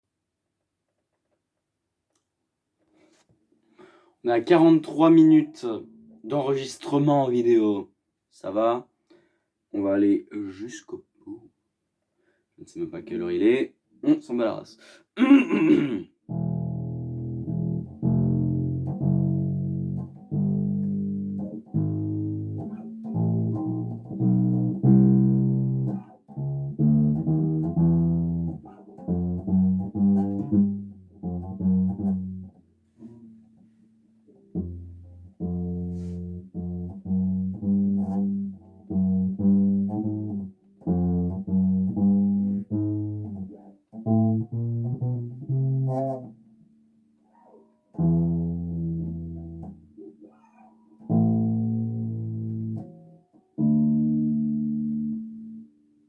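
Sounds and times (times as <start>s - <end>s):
bass guitar plucked notes: 15.6s - 33.6s, 34.3s - 46.6s, 47.5s - 50.4s, 51.0s - 55.7s.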